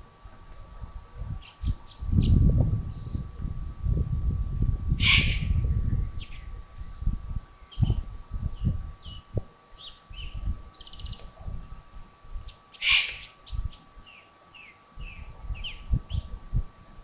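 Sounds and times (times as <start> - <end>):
faint steady hum: 0.0 - 17.0
hoarse rasping bird call: 5.0 - 5.5, 12.8 - 13.3.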